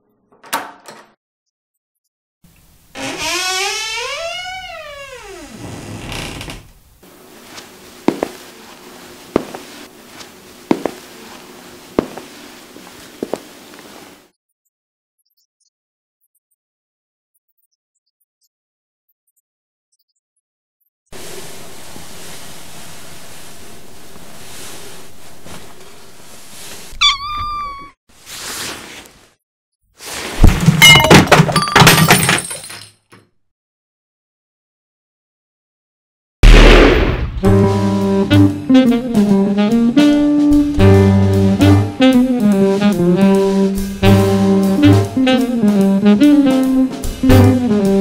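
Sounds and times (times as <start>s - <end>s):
footsteps on a hard floor: 7.4s - 14.2s
cat meowing: 27.0s - 28.0s.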